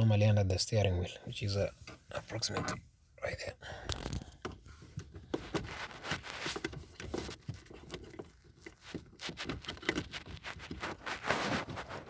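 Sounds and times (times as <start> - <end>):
rustling with light clicks: 3.9 - 12.0.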